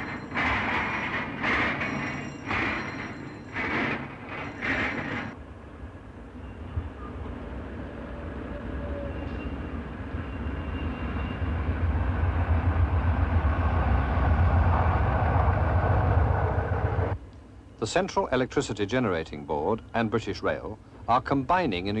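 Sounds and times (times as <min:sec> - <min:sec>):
wheels rumbling on rails: 0:00.0 - 0:17.2
diesel locomotive engine drone: 0:00.0 - 0:17.9.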